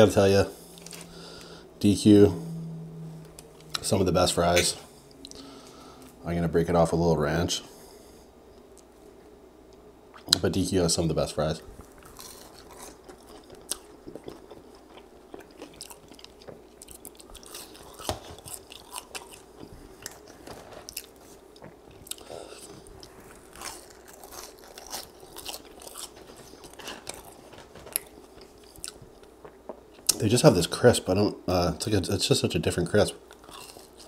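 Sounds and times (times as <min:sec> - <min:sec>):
person chewing crispy fries: 0:00.6 - 0:01.6, 0:11.8 - 0:30.2, 0:33.2 - 0:34.0.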